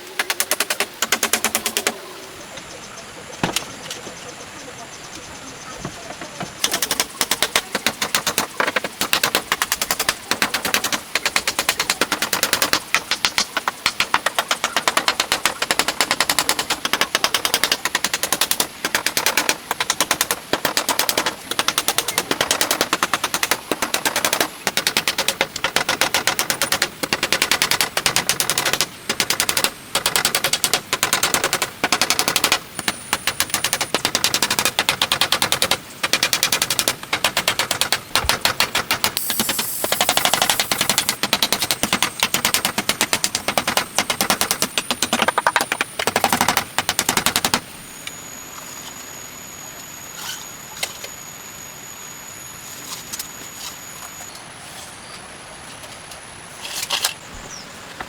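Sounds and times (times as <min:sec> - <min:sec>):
fast sharp knocks: 0:00.1 - 0:02.0, 0:06.4 - 0:47.7.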